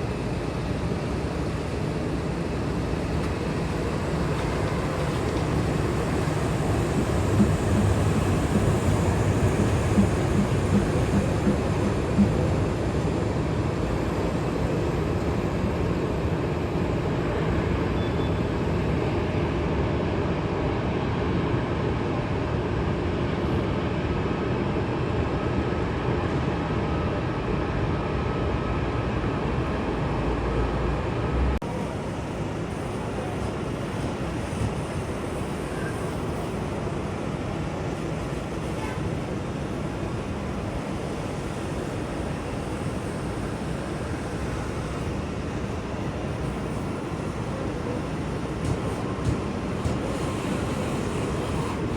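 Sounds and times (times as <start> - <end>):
jet engines rumbling: 0.0 - 19.5.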